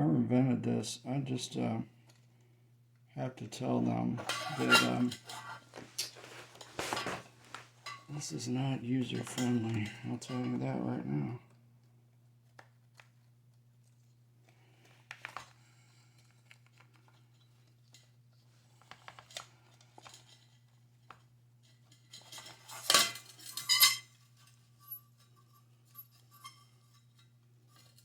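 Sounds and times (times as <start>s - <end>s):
metal parts clinking and scraping: 4.2s - 7.2s, 21.9s - 28.0s.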